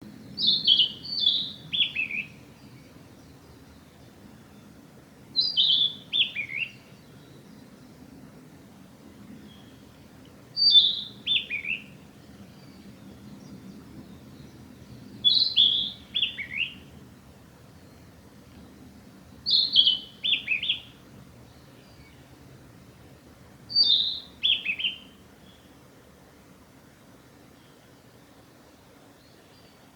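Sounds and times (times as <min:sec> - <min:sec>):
bird singing whistled notes: 0:00.2 - 0:03.9, 0:05.4 - 0:07.9, 0:10.6 - 0:16.9, 0:19.4 - 0:21.0, 0:23.7 - 0:25.7.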